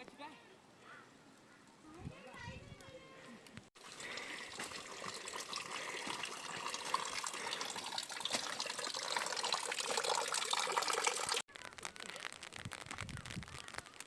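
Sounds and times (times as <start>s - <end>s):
running splashing water: 3.8s - 12.4s.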